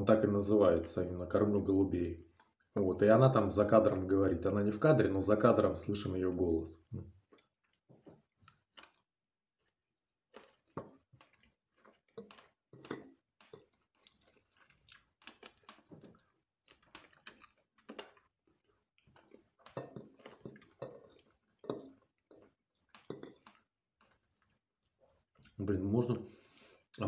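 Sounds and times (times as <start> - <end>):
close-up chewing with mouth smacks: 2.3 - 2.7, 7.1 - 25.6.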